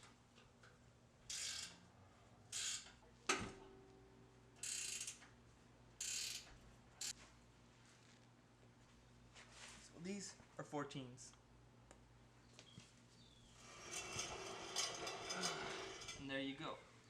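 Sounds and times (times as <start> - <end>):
ratchet wrench clicking: 4.6 - 5.2, 6.0 - 7.1.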